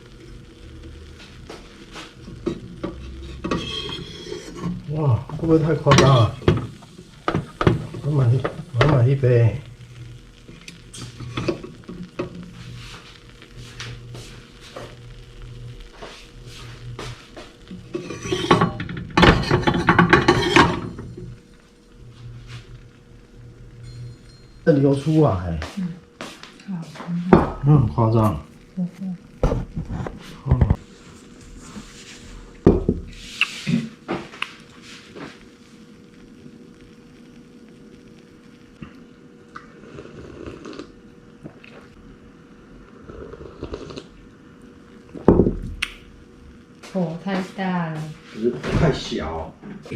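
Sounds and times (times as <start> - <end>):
faint steady hum: 0.0 - 49.9
kitchenware clattering: 17.9 - 21.2.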